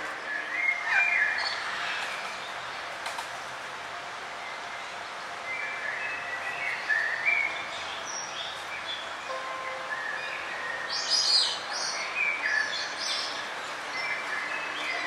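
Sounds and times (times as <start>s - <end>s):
forest birds chirping and whistling: 0.1s - 2.8s, 4.5s - 15.0s.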